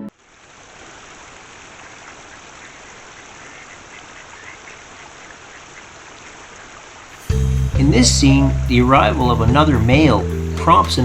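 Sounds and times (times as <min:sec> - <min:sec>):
water hissing: 0:00.1 - 0:07.7
ducks calling: 0:01.6 - 0:07.2.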